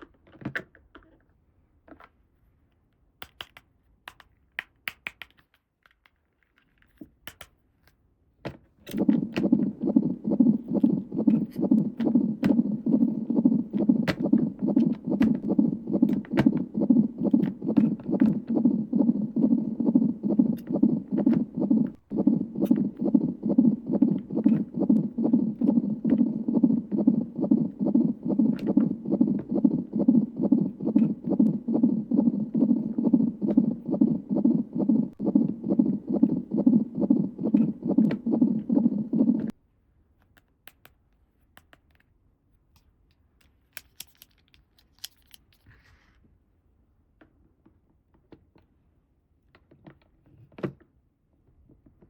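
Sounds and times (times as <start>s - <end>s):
toy pulsing buzzing hum: 8.9s - 39.5s.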